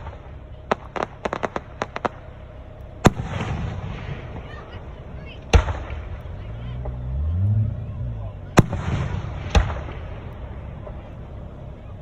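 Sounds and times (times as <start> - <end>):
fireworks crackling pops: 0.0 - 12.0
firework boom with echo: 3.0 - 11.2.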